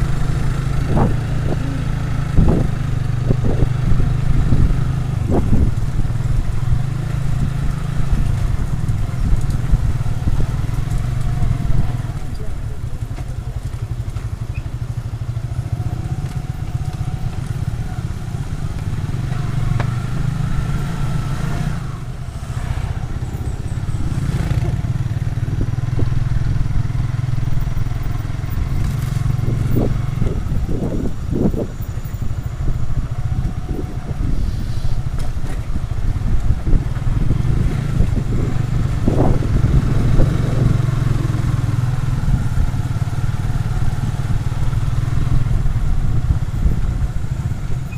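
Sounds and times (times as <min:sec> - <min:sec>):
motorcycle engine droning: 0:00.0 - 0:47.9.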